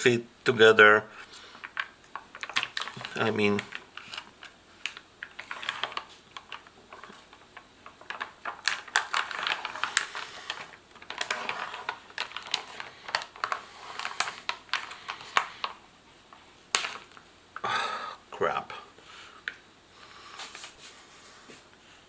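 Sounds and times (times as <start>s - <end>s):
plastic packaging crinkling: 1.2s - 17.3s.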